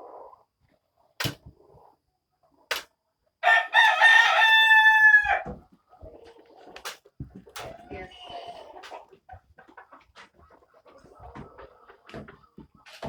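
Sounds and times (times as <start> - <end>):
rooster crowing: 3.4 - 5.5.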